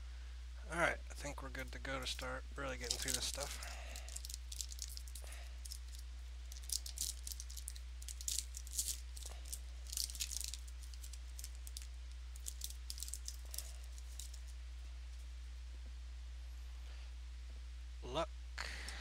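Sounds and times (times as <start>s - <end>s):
low electrical hum: 0.0s - 19.0s
foil wrappers crinkling: 1.6s - 14.6s.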